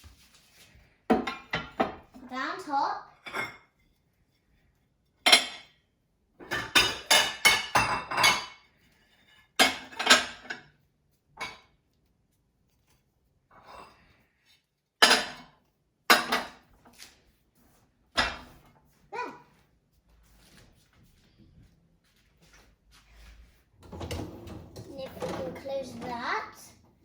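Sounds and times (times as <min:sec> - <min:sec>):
dishes and cutlery clinking: 0:01.1 - 0:02.5, 0:03.1 - 0:05.8, 0:06.4 - 0:11.8, 0:13.5 - 0:14.2, 0:15.0 - 0:17.2, 0:18.1 - 0:18.8, 0:23.8 - 0:26.6.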